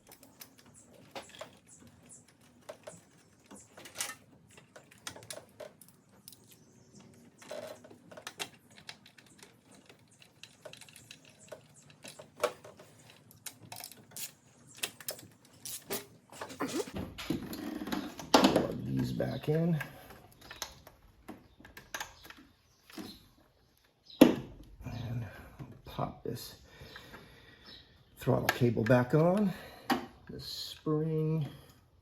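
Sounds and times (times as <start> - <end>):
metal parts and tools clinking: 0.0 - 18.2.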